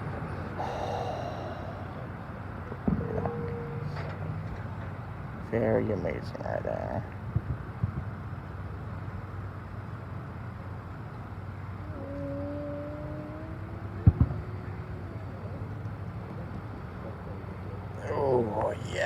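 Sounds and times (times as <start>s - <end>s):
low outdoor rumble: 0.0s - 19.0s
distant fireworks bangs: 14.0s - 14.4s.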